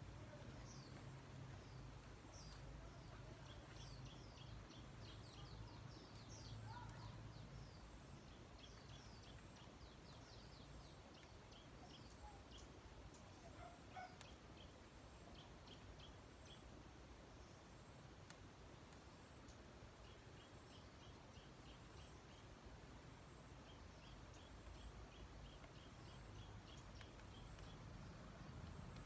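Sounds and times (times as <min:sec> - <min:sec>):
faint birds chirping: 0:00.0 - 0:29.0.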